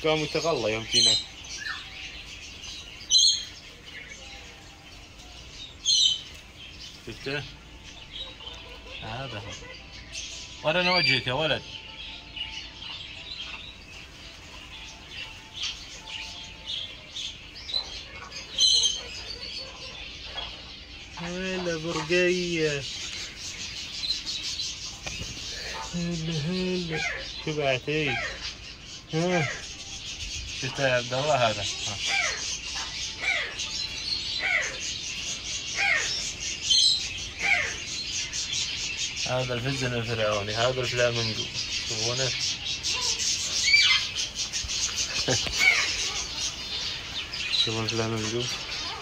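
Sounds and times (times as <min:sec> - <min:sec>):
birds chirping: 0:00.0 - 0:49.0
harsh bird call: 0:17.8 - 0:49.0.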